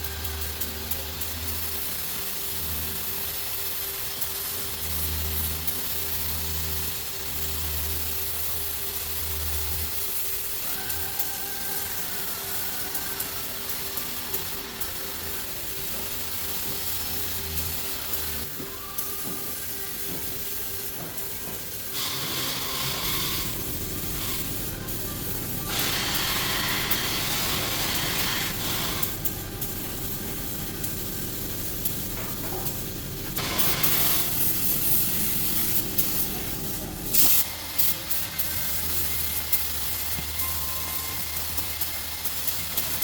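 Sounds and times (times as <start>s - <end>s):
compressed air hissing: 1.4s - 43.0s
steady low hum: 22.8s - 37.4s.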